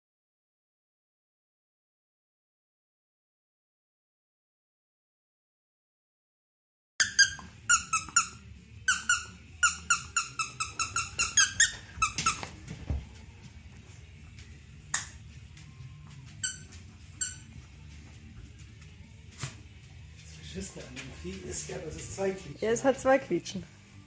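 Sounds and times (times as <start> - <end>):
squeaky dog toy squeaking: 7.0 - 12.6, 16.4 - 17.5.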